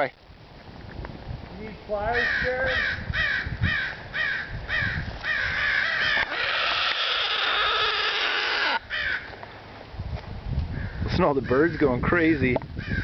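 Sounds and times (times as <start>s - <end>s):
long harsh rasping crow call: 2.2s - 9.4s
crows cawing: 2.2s - 9.5s, 10.7s - 11.9s, 12.8s - 13.0s.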